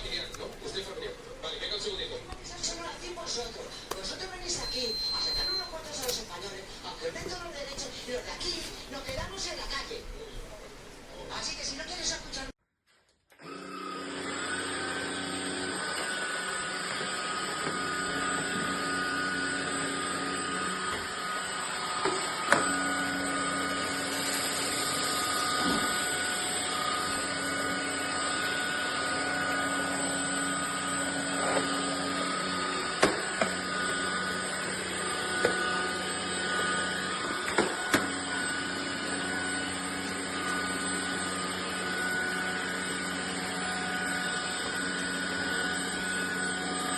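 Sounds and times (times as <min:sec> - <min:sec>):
vacuum cleaner motor whine: 0:00.0 - 0:12.5, 0:13.3 - 0:46.9.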